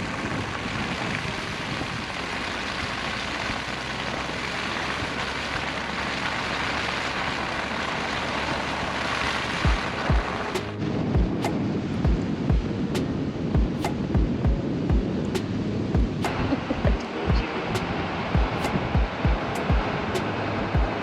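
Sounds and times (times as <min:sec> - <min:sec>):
short low thumps: 0:12.1 - 0:12.7, 0:18.4 - 0:19.9.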